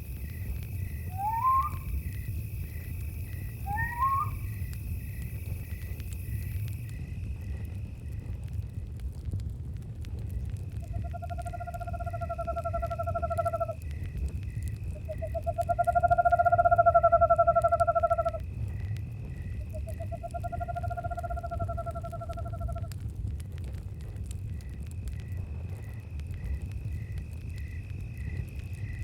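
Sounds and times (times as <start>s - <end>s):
crickets chirping: 0.0s - 8.9s, 10.1s - 22.9s, 24.0s - 29.0s
owl trilled hoots: 1.0s - 2.1s, 3.6s - 4.6s.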